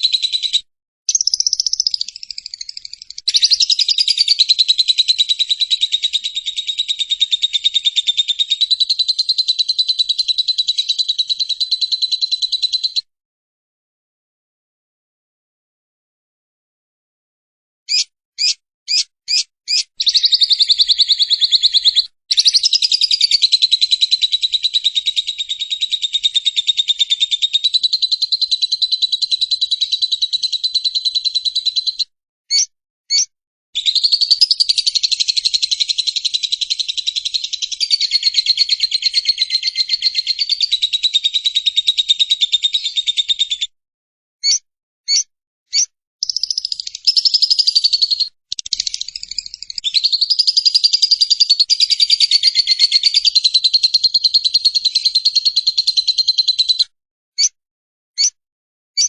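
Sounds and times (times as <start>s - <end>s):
lovebird chirps: 0.0s - 13.1s, 17.9s - 43.7s, 44.4s - 56.8s
lovebird chattering trills: 1.1s - 12.1s, 17.9s - 33.2s.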